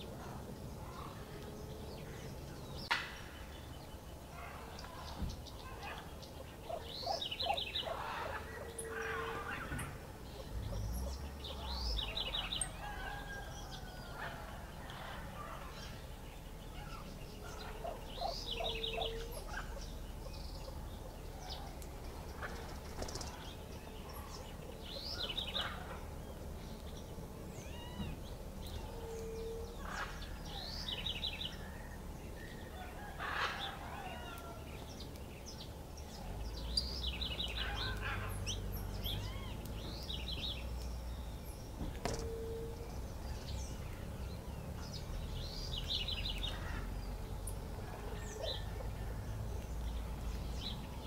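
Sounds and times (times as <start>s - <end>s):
birds chirping and whistling: 1.9s - 33.8s, 34.7s - 48.9s
bird trilling: 6.7s - 12.7s, 17.8s - 19.8s
low hooting note: 42.2s - 43.1s.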